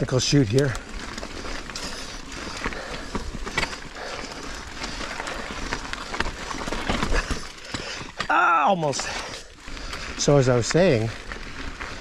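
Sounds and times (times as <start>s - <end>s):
bike knocks and rattles: 0.0s - 11.1s
bike tyres over rock: 0.0s - 12.0s.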